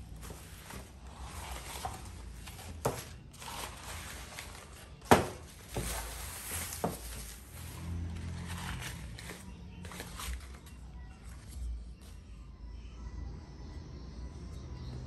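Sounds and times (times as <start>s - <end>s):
wrapping rustling: 0.0s - 11.7s.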